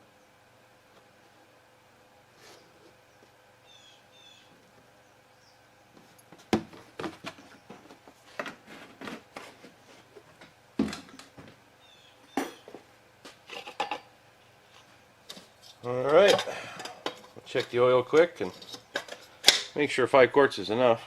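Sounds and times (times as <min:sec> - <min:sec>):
knocks and light clatters: 0:05.9 - 0:11.6.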